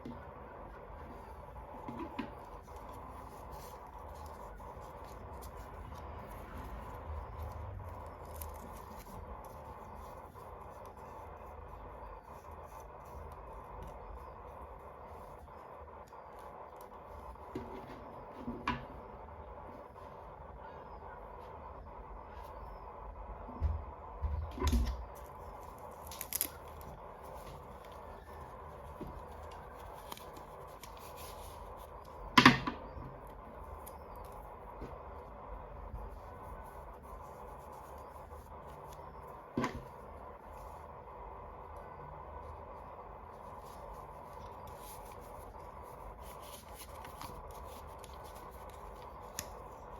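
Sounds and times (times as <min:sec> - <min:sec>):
faint steady hum: 0:00.0 - 0:49.9
plastic packaging handled: 0:01.1 - 0:18.4, 0:24.7 - 0:41.0, 0:42.4 - 0:49.9
toy pieces and packaging handled: 0:25.2 - 0:32.2.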